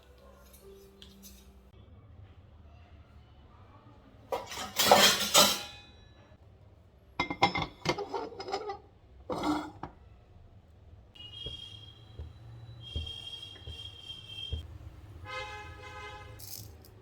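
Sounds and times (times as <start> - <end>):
dishes and cutlery clattering: 4.3 - 6.1, 7.2 - 10.0.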